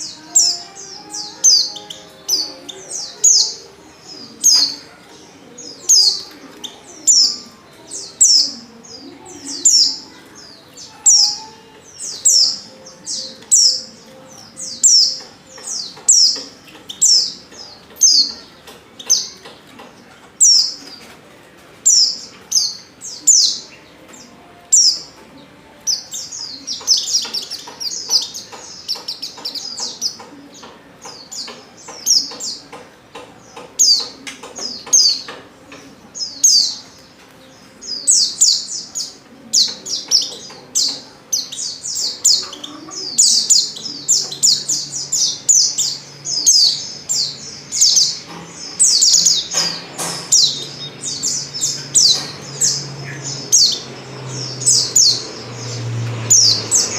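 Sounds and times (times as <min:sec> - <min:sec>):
bird chirping high notes: 0:00.0 - 0:04.9.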